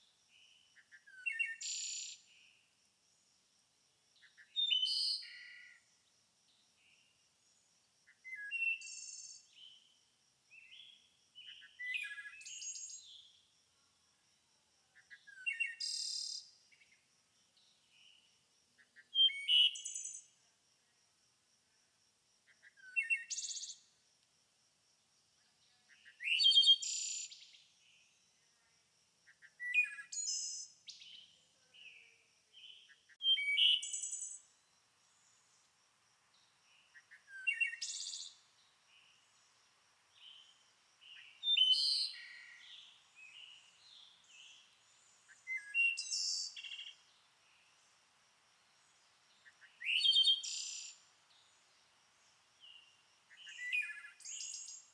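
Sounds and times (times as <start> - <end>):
songbird chirps and trills: 0.0 - 2.7, 4.2 - 13.5, 14.8 - 20.4, 29.3 - 54.9.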